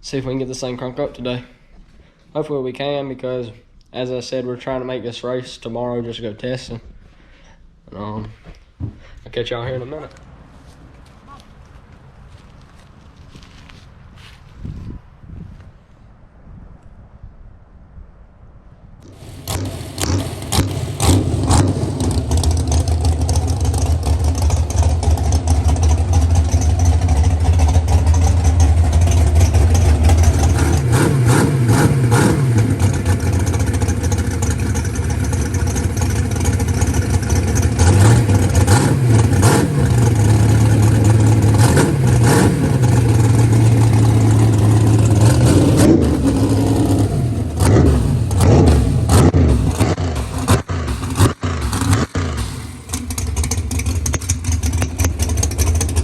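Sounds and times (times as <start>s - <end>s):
v eight engine starting and revving: 19.0s - 56.0s.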